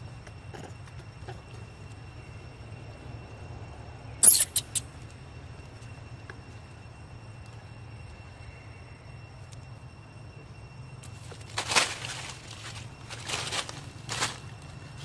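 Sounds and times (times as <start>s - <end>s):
monkey squealing: 4.2s - 4.8s.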